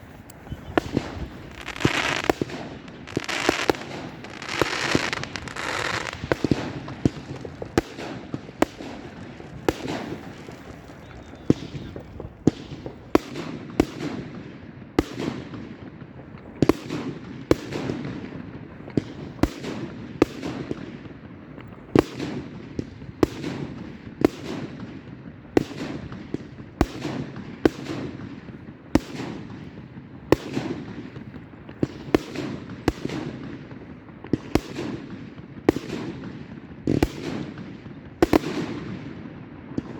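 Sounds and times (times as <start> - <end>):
fireworks bangs echoing: 0.0 - 39.9
fireworks rumble and crackle: 0.0 - 39.9.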